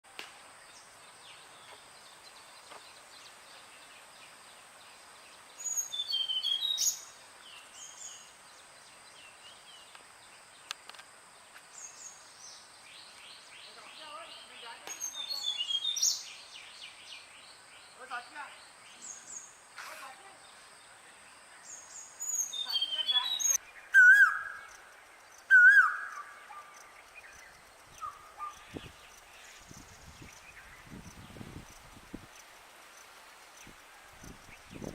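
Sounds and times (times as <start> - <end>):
high background hiss: 0.1 - 34.9
songbirds chirping: 0.2 - 34.9
bird whistled calls: 5.6 - 7.0, 22.3 - 24.7, 25.5 - 26.7.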